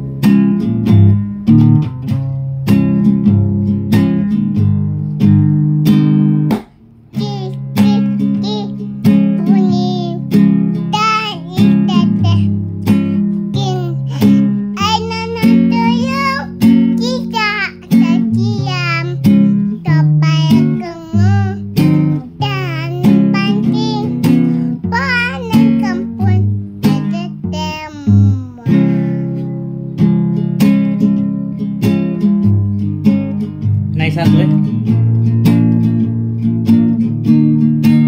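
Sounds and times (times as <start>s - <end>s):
strummed acoustic guitar: 0.0s - 38.0s
person singing: 7.2s - 8.8s, 9.4s - 10.2s, 11.0s - 12.5s, 13.6s - 29.5s.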